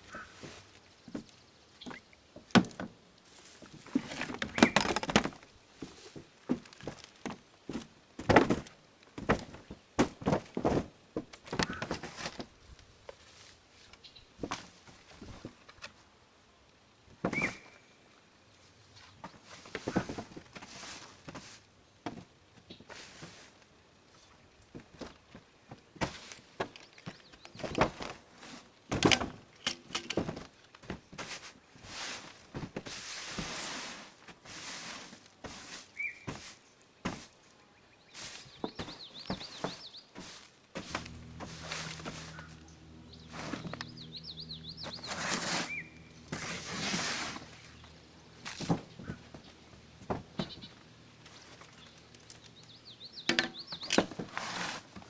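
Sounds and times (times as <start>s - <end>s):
footsteps on camper roof: 0.1s - 13.5s, 19.0s - 37.4s, 38.1s - 55.0s
rasping scrape: 39.6s - 49.2s, 54.2s - 55.0s.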